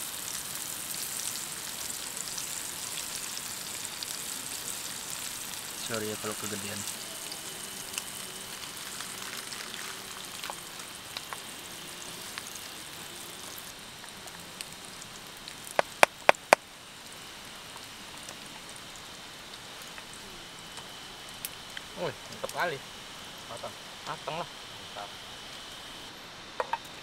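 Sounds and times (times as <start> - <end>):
sausages sizzling in a frying pan: 0.0 - 27.0
sharp clicks: 15.8 - 16.6.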